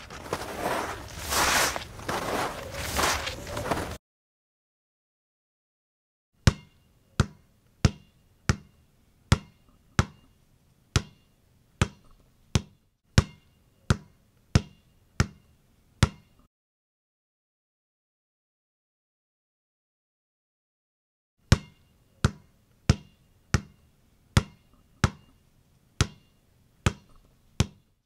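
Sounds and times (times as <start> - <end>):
ball bouncing: 6.4 - 8.7, 9.3 - 10.2, 11.0 - 11.2, 11.8 - 15.4, 16.0 - 16.3, 21.5 - 23.8, 24.4 - 25.3, 26.0 - 26.3, 26.9 - 27.9.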